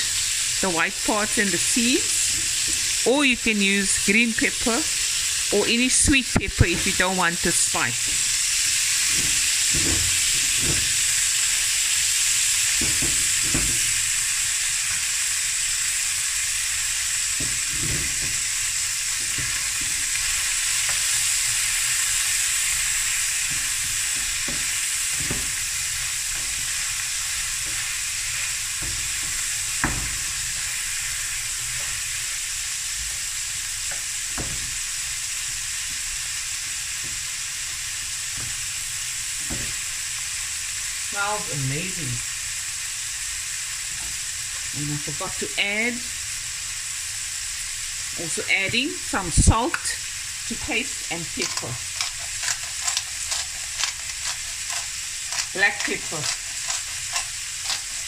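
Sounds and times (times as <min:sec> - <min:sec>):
food sizzling in a pan: 0:00.0 - 0:58.0
wooden spatula knocking and scraping: 0:09.0 - 0:11.2, 0:12.7 - 0:13.9, 0:17.4 - 0:18.5, 0:22.8 - 0:30.8, 0:33.9 - 0:34.8.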